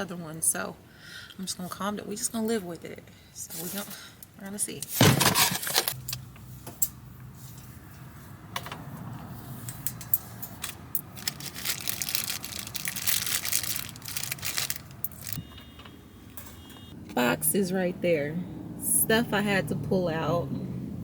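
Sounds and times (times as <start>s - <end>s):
rustling and crinkling: 10.5s - 15.4s.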